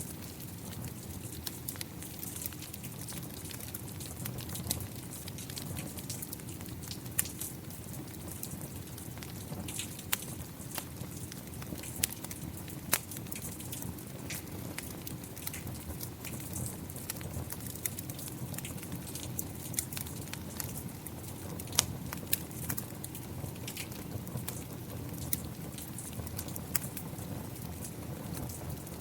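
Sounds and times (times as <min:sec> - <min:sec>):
rain pattering: 0:00.0 - 0:29.0
wood fire crackling and snapping: 0:00.0 - 0:29.0.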